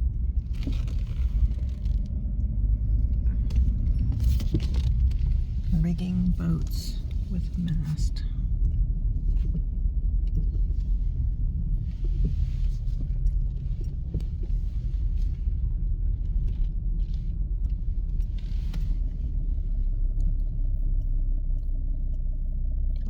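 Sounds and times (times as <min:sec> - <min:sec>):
truck engine rumbling: 0:00.0 - 0:23.0
light ticks: 0:08.1 - 0:23.0.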